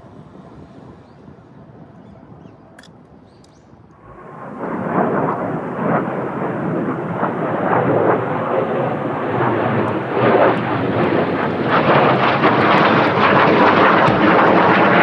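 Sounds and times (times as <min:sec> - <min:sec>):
jet aircraft roar overhead: 0:04.0 - 0:15.0.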